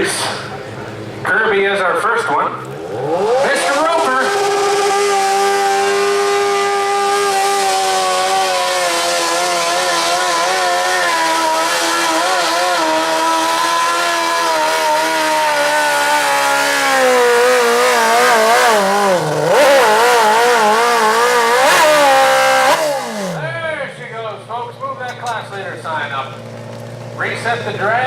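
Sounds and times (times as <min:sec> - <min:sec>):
lawn tractor engine under load: 0:00.0 - 0:28.0.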